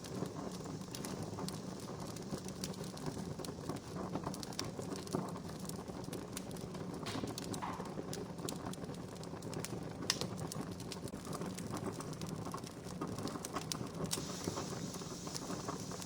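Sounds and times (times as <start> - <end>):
campfire crackling and popping: 0.0 - 16.0
low rumble of flames: 0.0 - 16.0
loud pop from fire: 6.9 - 8.8, 14.0 - 16.0.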